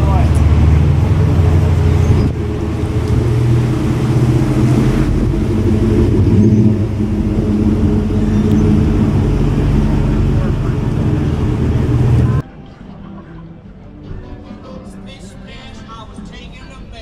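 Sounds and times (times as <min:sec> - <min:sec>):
car engine running: 0:00.0 - 0:12.4.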